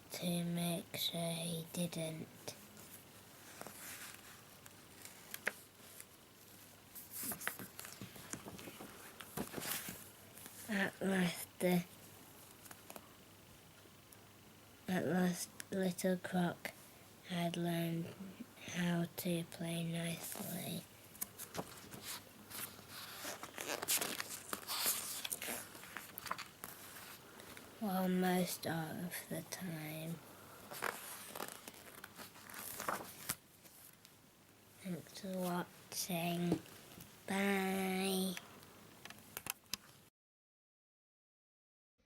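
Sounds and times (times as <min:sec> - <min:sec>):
soft rustling and handling: 0:02.5 - 0:10.9, 0:20.1 - 0:27.8, 0:30.6 - 0:34.2.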